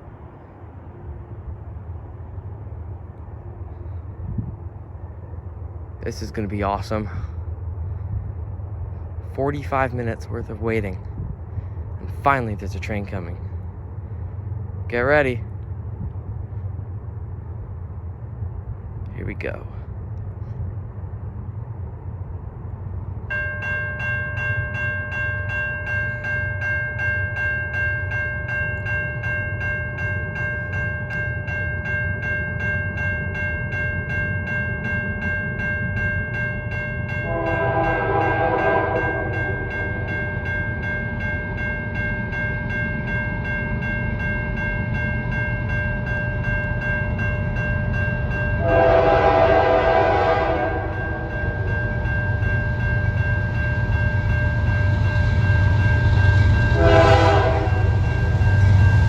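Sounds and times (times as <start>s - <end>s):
diesel locomotive rumble: 0.0s - 59.0s
level-crossing bell ringing: 23.3s - 59.0s
locomotive horn blast: 37.2s - 40.1s, 48.6s - 51.3s, 56.7s - 58.0s.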